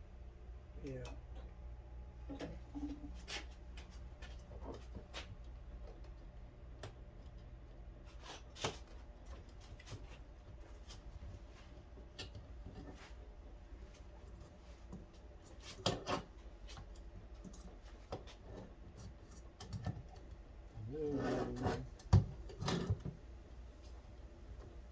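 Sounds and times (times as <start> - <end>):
low steady hum: 0.0 - 24.9.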